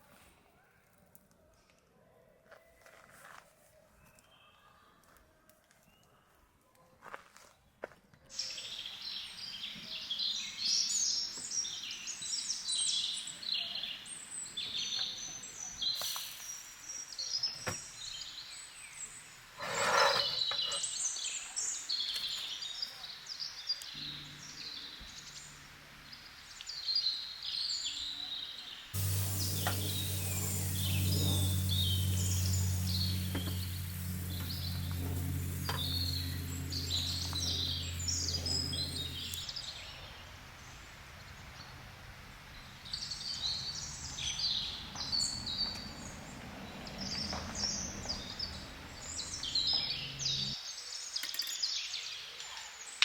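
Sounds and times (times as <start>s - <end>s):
steady low hum: 24.0s - 26.8s, 29.0s - 50.6s.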